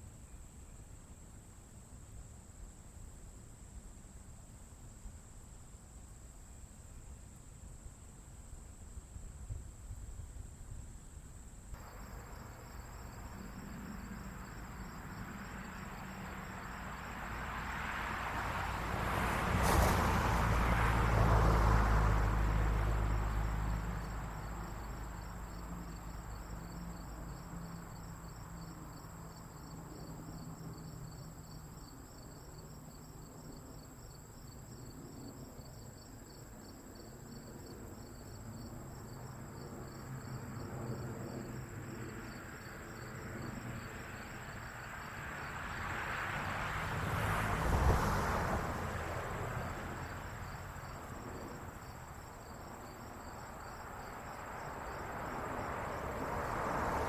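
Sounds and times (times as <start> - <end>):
insects chirping: 2.6 - 57.0
low engine-like rumble: 11.8 - 17.4.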